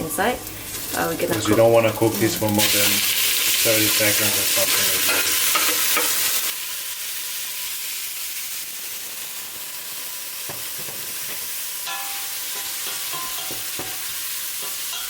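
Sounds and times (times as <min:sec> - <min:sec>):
squid frying in hot oil: 0:00.1 - 0:15.0.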